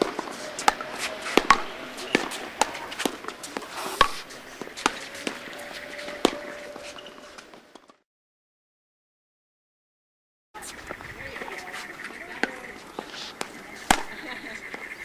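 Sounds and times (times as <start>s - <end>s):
paddles striking ball: 0.0s - 5.4s, 13.4s - 14.2s
court noise: 0.0s - 7.9s, 10.6s - 15.0s.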